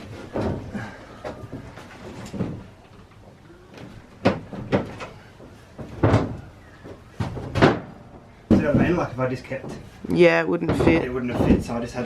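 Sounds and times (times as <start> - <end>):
knocks and thumps: 0.0 - 12.0.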